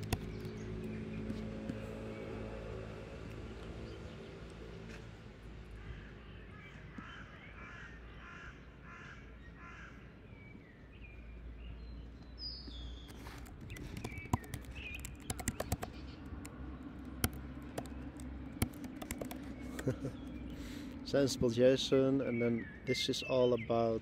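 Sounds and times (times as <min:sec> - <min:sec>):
computer keyboard typing: 0:00.0 - 0:00.5, 0:13.1 - 0:20.1
bird calling: 0:05.8 - 0:10.1.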